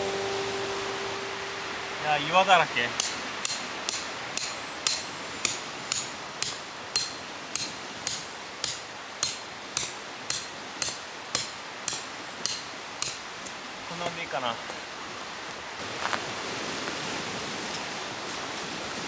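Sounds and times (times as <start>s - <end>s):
tent peg hammered into rocky ground: 3.0s - 14.3s.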